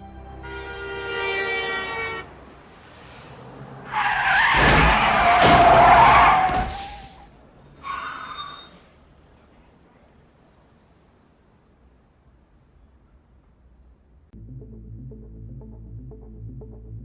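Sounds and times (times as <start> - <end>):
soft film music: 0.0 - 2.8, 14.4 - 17.0
car tyres screeching: 0.3 - 10.8
heavy thuds of car impact: 4.4 - 7.2.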